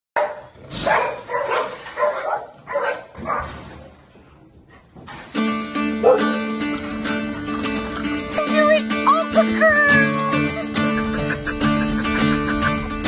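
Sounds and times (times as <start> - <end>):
dog barking: 0.2 - 3.6, 6.0 - 6.4
plucked string music: 5.3 - 13.0.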